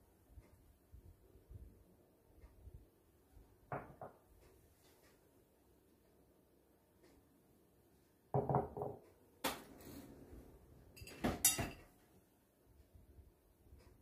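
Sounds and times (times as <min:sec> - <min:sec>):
dull knocks of dishes: 0:08.3 - 0:09.0
crockery and cutlery clattering: 0:11.0 - 0:11.9.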